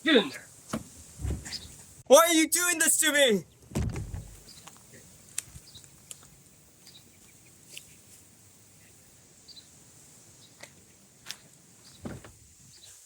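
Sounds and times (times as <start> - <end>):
bird chirps: 1.4 - 1.8, 4.4 - 4.8, 5.6 - 8.0, 9.5 - 9.8.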